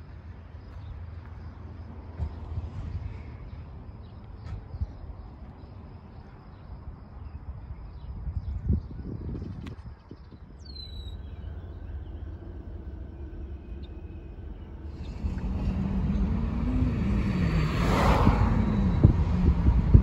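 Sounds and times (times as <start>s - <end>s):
bird chirp: 3.1s - 20.0s
diesel locomotive rumbling: 10.3s - 20.0s.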